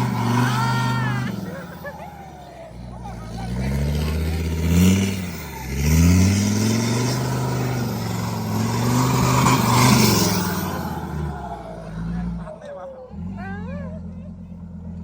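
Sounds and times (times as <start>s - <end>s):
dump truck diesel engine revving: 0.0s - 15.0s.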